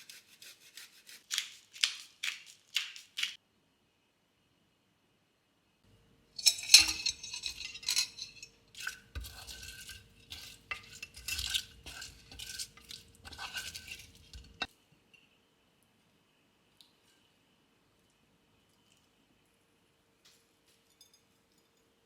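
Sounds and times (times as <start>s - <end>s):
utensil scraping a pan: 6.4s - 14.7s.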